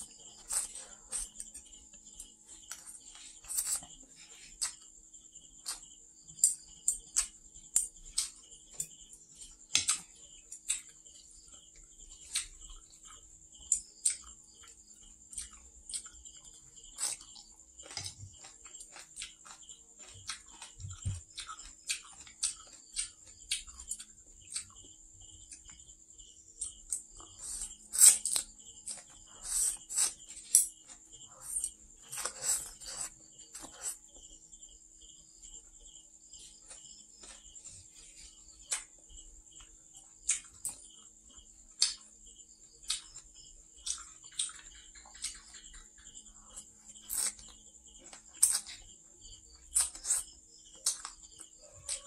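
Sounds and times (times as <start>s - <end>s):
wet chewing and lip smacks: 9.7s - 25.8s, 42.8s - 48.9s, 49.6s - 52.0s.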